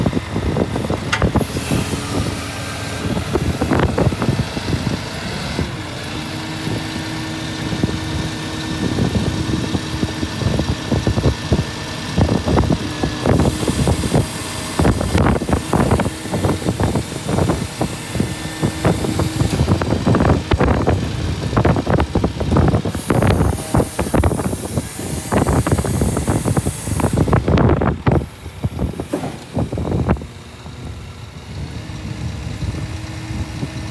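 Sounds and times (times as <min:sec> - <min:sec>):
diesel truck engine running: 0:00.0 - 0:33.9.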